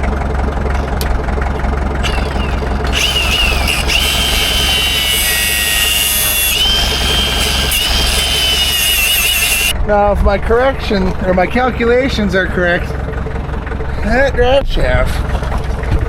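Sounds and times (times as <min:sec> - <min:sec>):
low engine-like hum: 0:00.0 - 0:08.8, 0:09.5 - 0:16.0
angle grinder cutting metal: 0:02.0 - 0:09.7.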